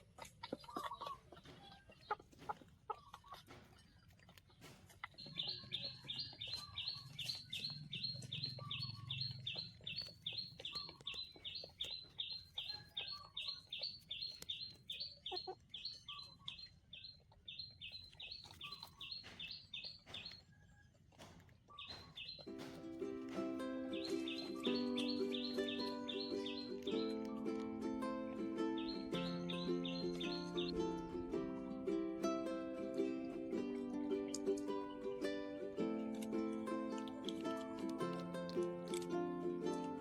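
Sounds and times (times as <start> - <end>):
bird high chirps: 5.1 - 20.6, 21.7 - 31.4.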